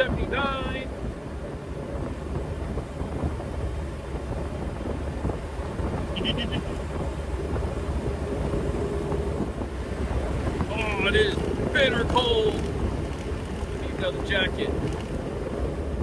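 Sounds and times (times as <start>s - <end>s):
diesel engine cruising: 0.0s - 16.0s
road and wind noise: 0.0s - 16.0s.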